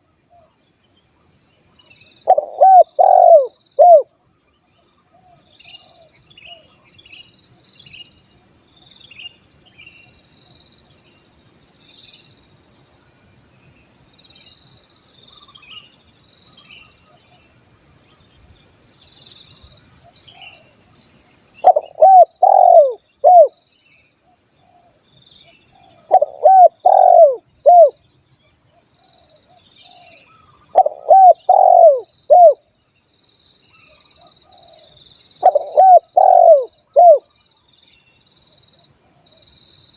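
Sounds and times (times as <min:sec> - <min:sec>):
high insect hum: 0:00.0 - 0:39.9
birds chirping: 0:02.2 - 0:04.0, 0:21.6 - 0:24.0, 0:25.8 - 0:27.9, 0:29.8 - 0:32.6, 0:35.4 - 0:37.2
dove cooing: 0:02.2 - 0:04.1, 0:21.6 - 0:23.6, 0:25.8 - 0:28.0, 0:29.9 - 0:32.6, 0:35.4 - 0:37.3.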